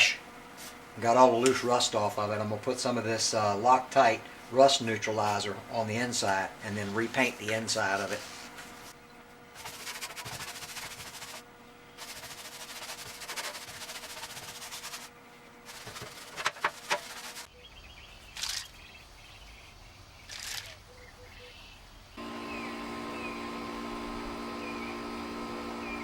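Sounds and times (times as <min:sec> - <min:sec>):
aerosol can spraying: 0:09.6 - 0:11.4, 0:12.0 - 0:15.1, 0:15.7 - 0:17.5
sharp clicks: 0:18.4 - 0:18.7, 0:20.3 - 0:20.8.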